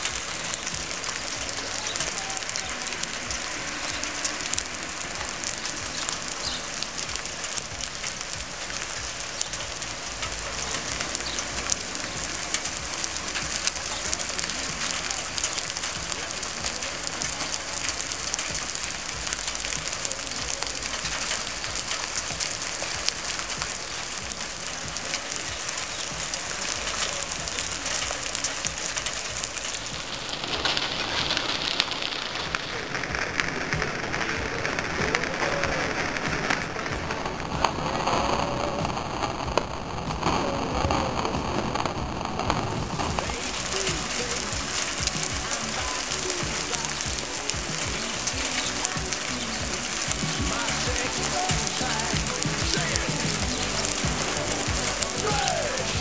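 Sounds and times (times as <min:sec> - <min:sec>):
heavy rain on asphalt: 0:00.0 - 0:56.0.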